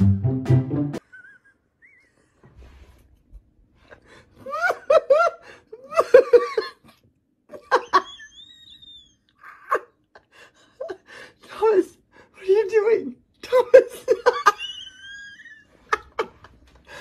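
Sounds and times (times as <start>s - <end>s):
person laughing: 1.0s - 2.4s, 4.4s - 10.0s, 13.6s - 17.0s.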